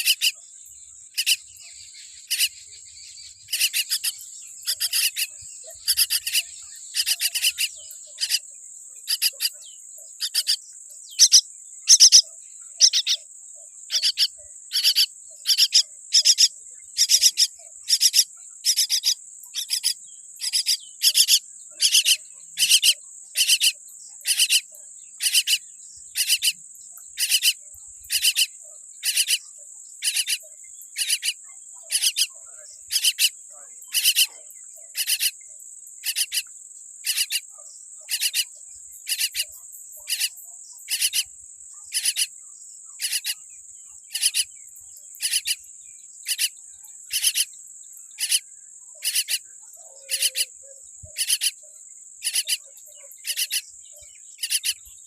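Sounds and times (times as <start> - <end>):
bird chick calling: 0.0 - 0.4, 1.1 - 1.5, 2.2 - 2.6, 3.2 - 8.4, 9.1 - 13.2, 13.9 - 26.6, 30.0 - 33.3, 41.9 - 42.3, 49.0 - 51.6
high-pitched insect-like trill: 0.0 - 55.0.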